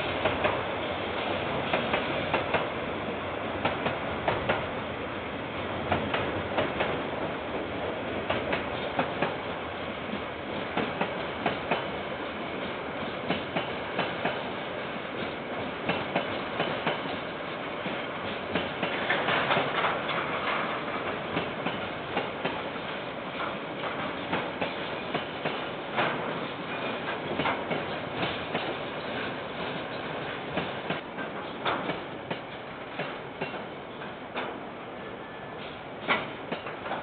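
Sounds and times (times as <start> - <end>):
train rumbling past: 0.0 - 37.0
wheels clacking over rail joints: 17.8 - 22.6, 23.3 - 34.6, 36.0 - 37.0.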